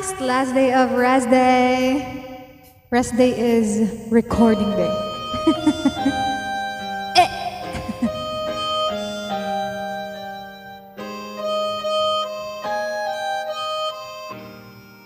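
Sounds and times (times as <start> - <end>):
sustained chords: 4.2 - 14.6
harmonica playing held notes: 4.4 - 15.0.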